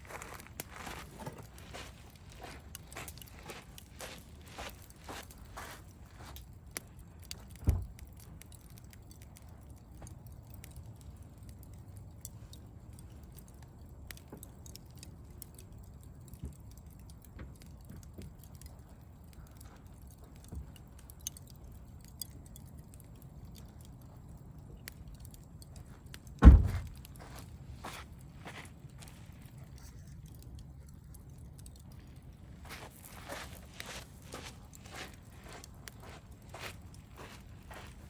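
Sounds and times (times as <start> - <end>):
campfire crackling and popping: 0.0 - 38.0
low steady rumble of fire: 0.0 - 38.0
dull thump: 26.4 - 26.9.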